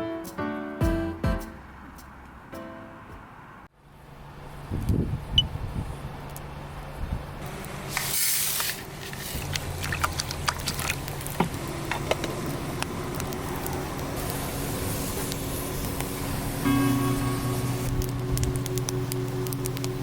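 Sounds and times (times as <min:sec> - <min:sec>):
fire pops and crackles: 0:07.9 - 0:16.6, 0:17.8 - 0:20.0
food sizzling over fire: 0:07.9 - 0:20.0.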